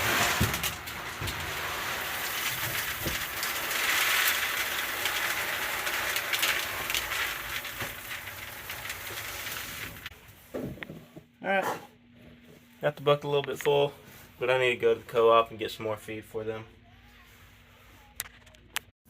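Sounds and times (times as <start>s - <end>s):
feed pellets pouring into bucket: 0.0s - 10.1s.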